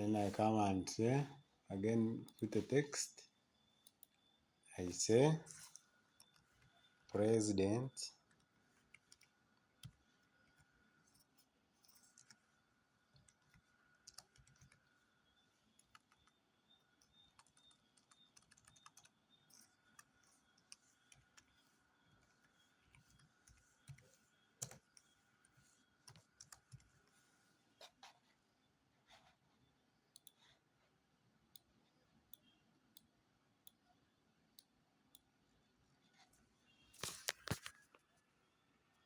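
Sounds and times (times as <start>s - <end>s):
faint steady high tone: 0.0s - 30.6s, 31.5s - 35.8s
keyboard typing clicks: 8.3s - 12.4s, 13.2s - 15.0s, 15.7s - 21.6s, 22.2s - 25.2s, 26.0s - 27.0s, 30.1s - 30.4s.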